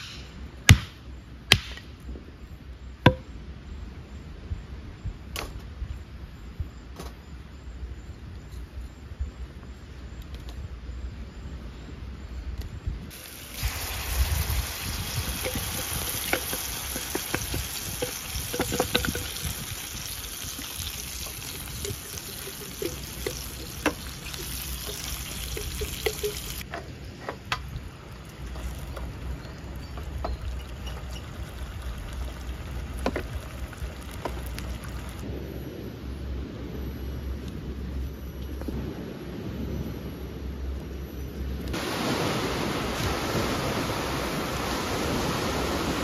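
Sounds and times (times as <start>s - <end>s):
food sizzling in a pan: 13.1s - 26.6s
sauce pouring: 13.2s - 26.6s.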